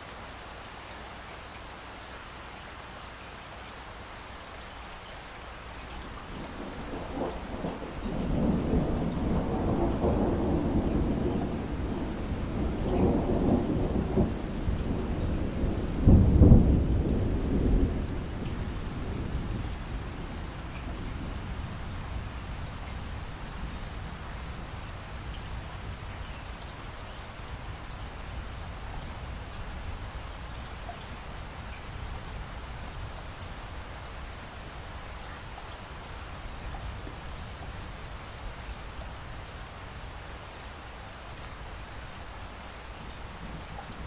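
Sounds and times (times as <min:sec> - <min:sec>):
steady rain: 0:00.0 - 0:44.0
thunder rumbling: 0:06.2 - 0:26.1.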